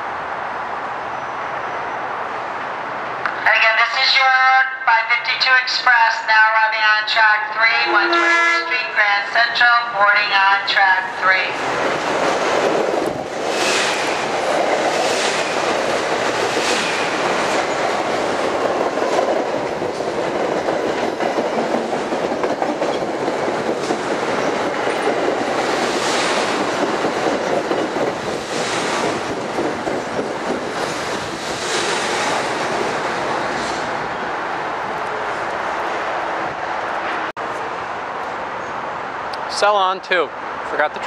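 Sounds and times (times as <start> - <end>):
rolling rumble of train wheels: 7.6 - 39.6.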